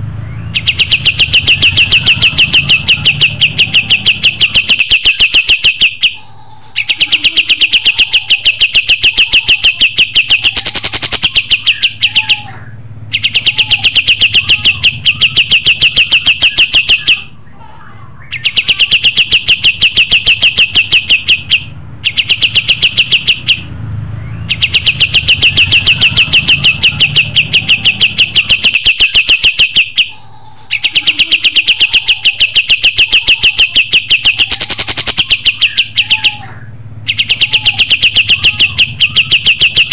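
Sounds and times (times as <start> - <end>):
songbird chirping rapidly: 0.0 - 39.9.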